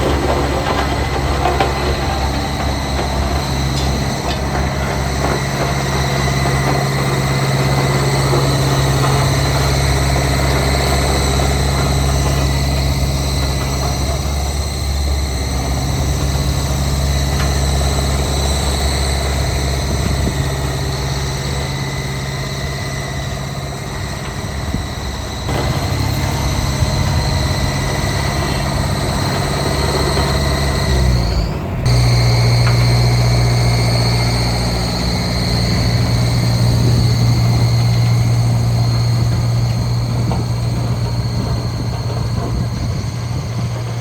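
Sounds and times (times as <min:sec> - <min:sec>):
diesel engine droning: 0:00.0 - 0:44.0.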